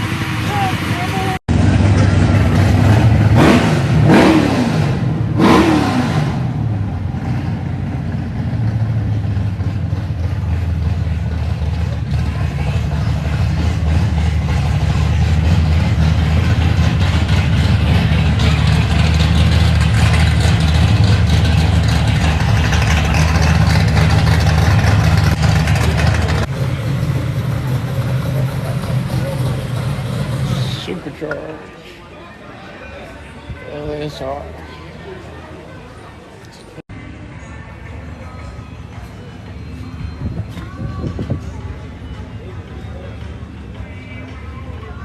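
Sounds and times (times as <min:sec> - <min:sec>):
car engine revving: 0:00.0 - 0:31.1
car engine low rumble: 0:00.0 - 0:31.7, 0:34.4 - 0:45.0.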